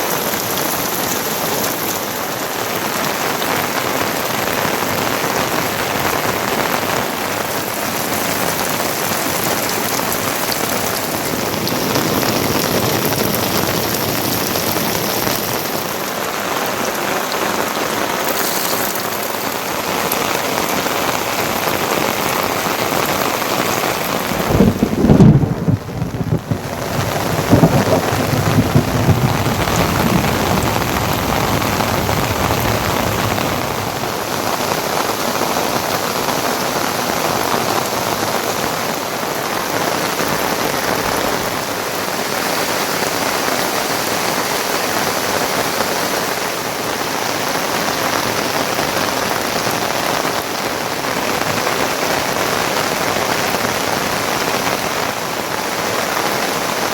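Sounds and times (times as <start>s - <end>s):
heavy rain: 0.0s - 56.9s
thunder rumbling: 4.0s - 17.3s, 19.0s - 34.4s.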